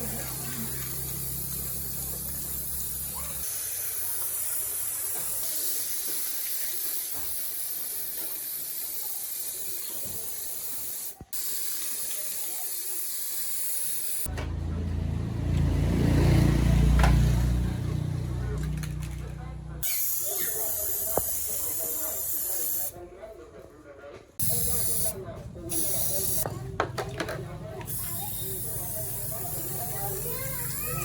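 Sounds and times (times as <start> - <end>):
spraying hiss: 0.0 - 14.3, 19.8 - 22.9, 24.4 - 26.4, 27.9 - 31.0.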